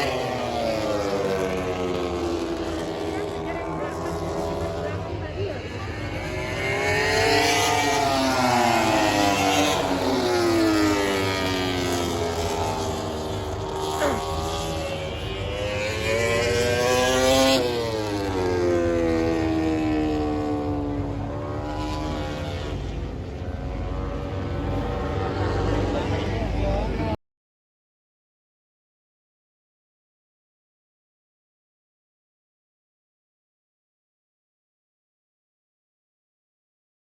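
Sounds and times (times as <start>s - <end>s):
racing motorcycles passing by: 0.0s - 27.2s.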